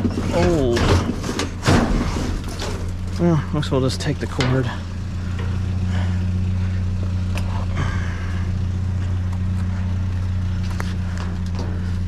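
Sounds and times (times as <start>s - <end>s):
debris clicking and rattling: 0.0s - 5.6s
vehicle engine idling: 0.0s - 12.0s.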